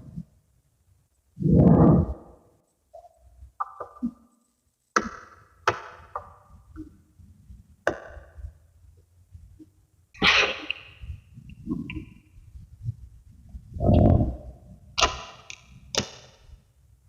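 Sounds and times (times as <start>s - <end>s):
magnetic balls clicking together: 15.0s - 16.4s.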